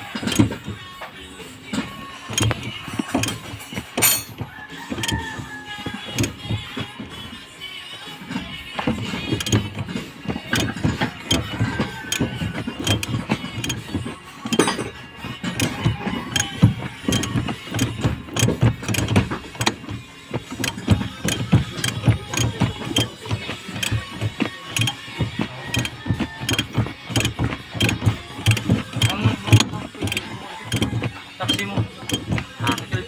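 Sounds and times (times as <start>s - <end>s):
metallic clicks and knocks of tools: 1.8s - 5.3s, 6.1s - 6.6s, 8.8s - 33.0s.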